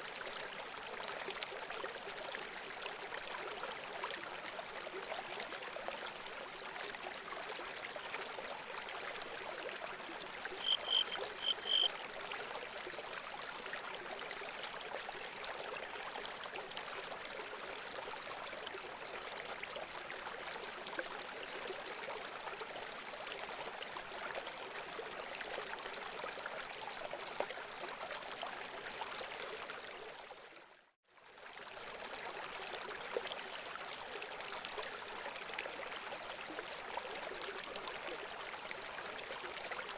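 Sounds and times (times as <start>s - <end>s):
water trickling: 4.9s - 18.8s
bird chirps: 10.6s - 11.9s.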